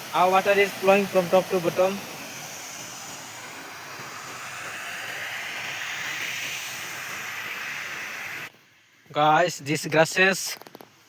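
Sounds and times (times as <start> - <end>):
water rushing and splashing: 0.0 - 8.5.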